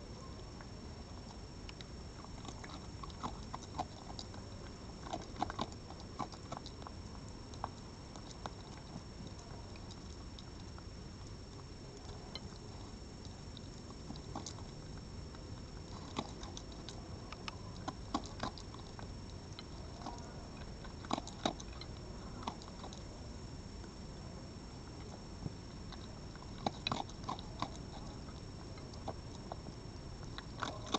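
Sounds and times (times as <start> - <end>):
low background hum: 0.0 - 30.9
animal crunching chews: 0.2 - 30.9.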